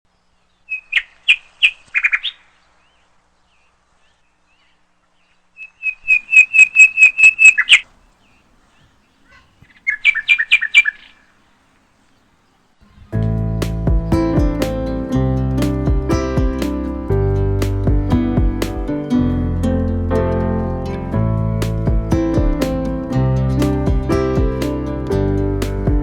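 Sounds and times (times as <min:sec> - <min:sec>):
bird chirping: 0:04.6 - 0:15.2.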